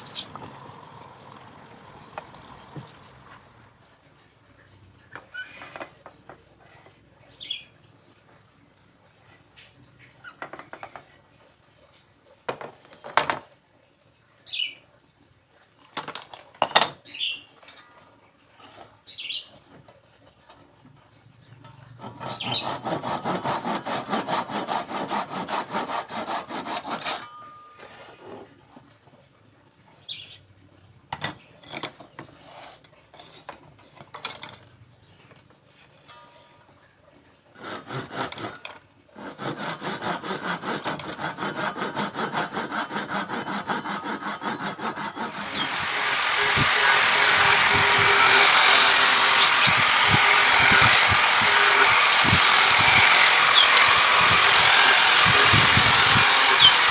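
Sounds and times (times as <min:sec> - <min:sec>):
saw cutting bamboo: 0:00.0 - 0:03.6, 0:22.0 - 0:27.4, 0:37.5 - 0:56.9.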